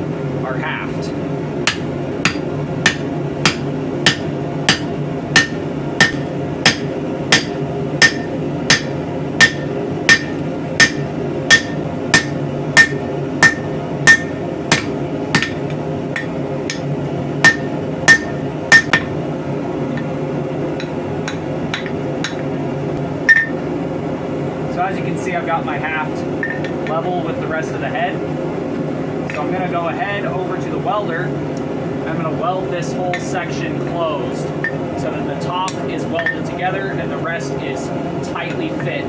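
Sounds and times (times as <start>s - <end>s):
steady hum: 0.0s - 39.0s
hammer striking metal: 1.7s - 19.2s, 20.8s - 22.5s, 23.3s - 23.6s.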